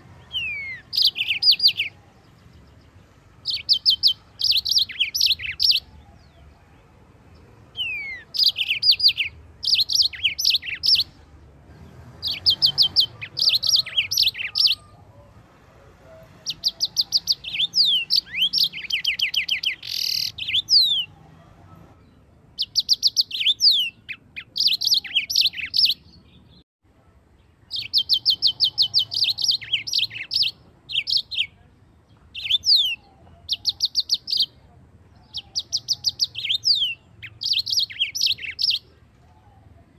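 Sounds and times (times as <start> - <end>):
canary singing trills: 0.0 - 15.4, 16.0 - 26.6, 27.5 - 39.9.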